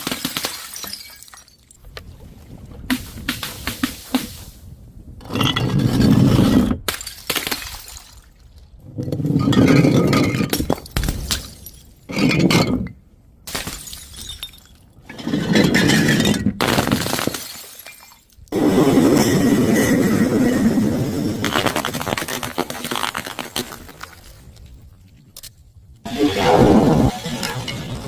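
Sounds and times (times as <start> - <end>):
glass bottles breaking: 0.0 - 1.8, 13.5 - 14.8, 15.4 - 18.4.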